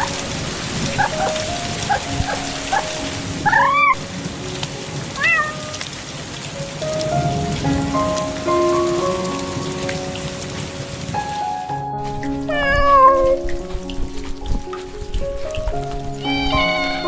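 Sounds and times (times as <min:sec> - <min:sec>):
soft background music: 0:00.0 - 0:17.0
steady rain: 0:00.0 - 0:17.0
cat meow: 0:05.2 - 0:05.9, 0:12.5 - 0:13.4.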